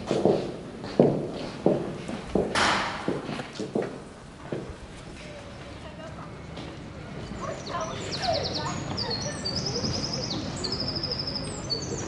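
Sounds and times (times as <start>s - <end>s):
birds singing trills: 5.7s - 12.0s.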